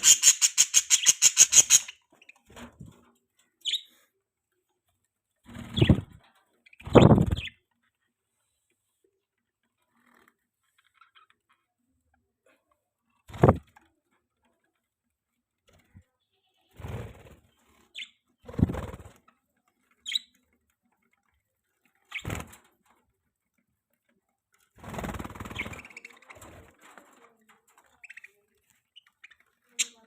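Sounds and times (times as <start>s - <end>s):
budgies chirping: 0.0s - 2.0s.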